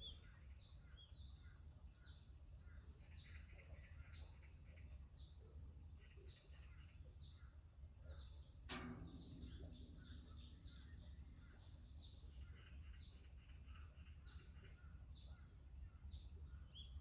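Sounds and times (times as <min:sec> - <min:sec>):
faint birds chirping: 0:00.0 - 0:17.0
low steady rumble: 0:07.2 - 0:16.8
sharp click: 0:08.7 - 0:10.9.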